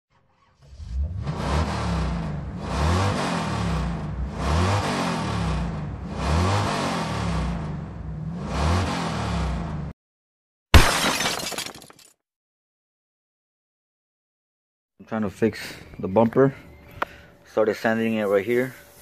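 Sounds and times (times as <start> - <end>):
car engine revving: 0.6 - 10.0.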